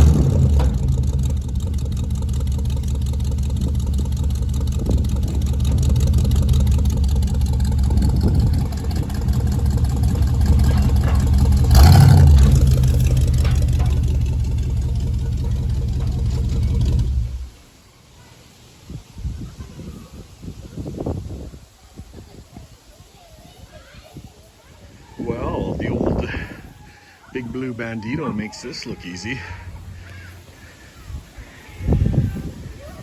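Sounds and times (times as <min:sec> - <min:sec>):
truck engine running under load: 0:00.0 - 0:17.6.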